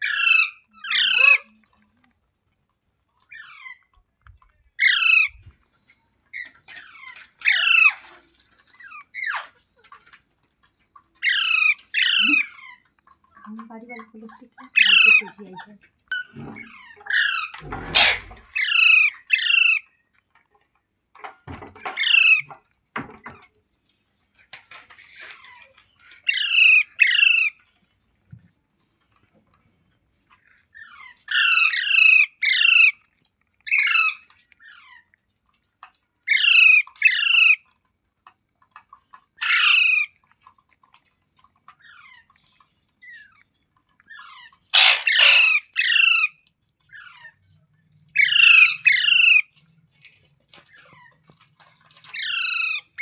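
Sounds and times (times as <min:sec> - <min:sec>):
parakeet squawking: 0:00.0 - 0:01.4, 0:11.2 - 0:12.7, 0:14.8 - 0:15.3, 0:16.5 - 0:19.8, 0:44.8 - 0:46.3, 0:48.2 - 0:49.4.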